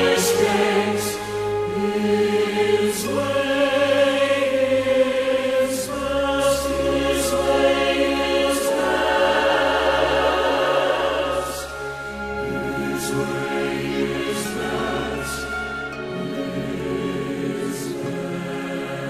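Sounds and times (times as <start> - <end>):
choir-like singing: 0.0 - 19.0
instrumental accompaniment: 0.0 - 19.0.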